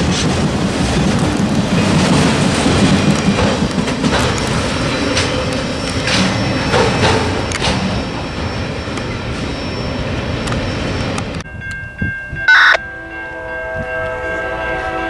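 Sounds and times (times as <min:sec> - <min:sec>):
train cars rolling past: 0:00.0 - 0:11.5
diesel locomotive horn: 0:12.5 - 0:15.0.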